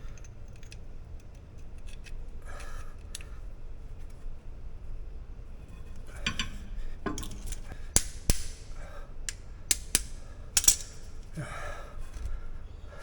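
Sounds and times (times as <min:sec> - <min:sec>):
sharp metallic clicks: 0:06.3 - 0:11.0.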